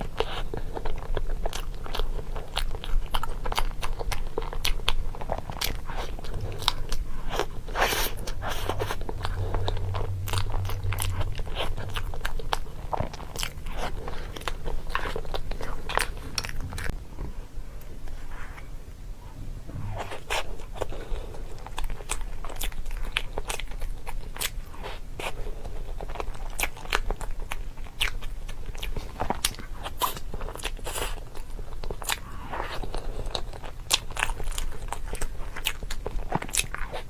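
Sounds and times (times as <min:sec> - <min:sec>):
person chewing crunchy food: 0:00.0 - 0:17.0, 0:19.8 - 0:37.0
low hum: 0:05.2 - 0:26.5.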